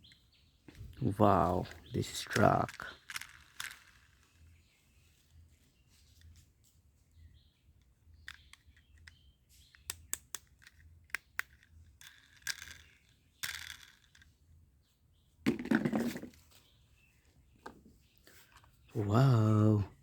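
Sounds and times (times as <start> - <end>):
plastic toy vehicles clicking: 0.0 - 4.6, 7.8 - 14.4.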